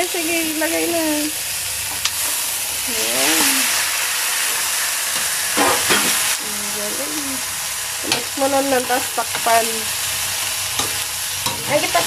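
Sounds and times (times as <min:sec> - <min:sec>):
meat sizzling in hot oil: 0:00.0 - 0:12.0
spatula clattering in pan: 0:10.7 - 0:12.0.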